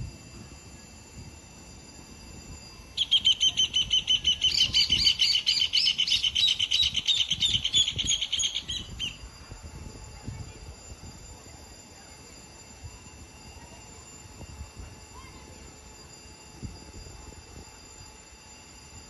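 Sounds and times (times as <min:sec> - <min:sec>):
insect trill: 0:00.0 - 0:19.0
bird chirping rapidly: 0:03.0 - 0:09.2.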